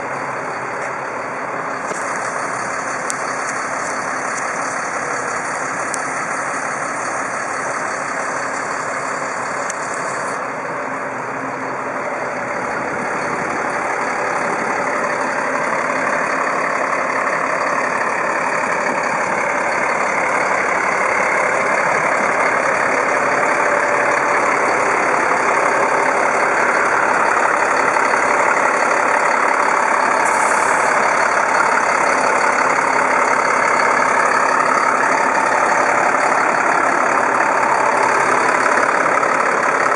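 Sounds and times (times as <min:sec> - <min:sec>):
truck engine running: 0:00.0 - 0:39.9.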